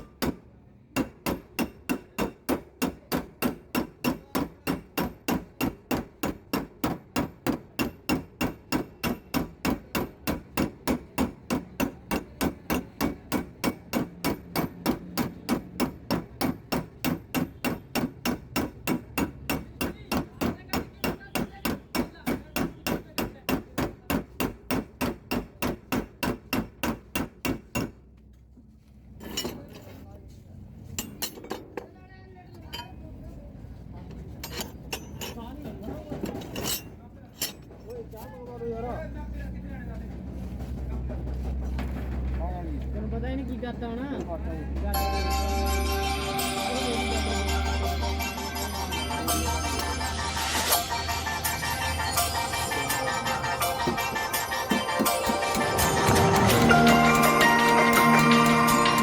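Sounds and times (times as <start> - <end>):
hammer tapping on steel panel: 0.0 - 0.4, 1.0 - 28.0.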